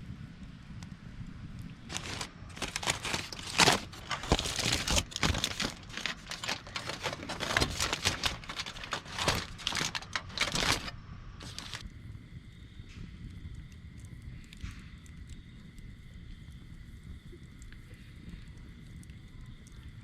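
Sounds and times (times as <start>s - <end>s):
crinkling and rustling: 1.8s - 11.8s.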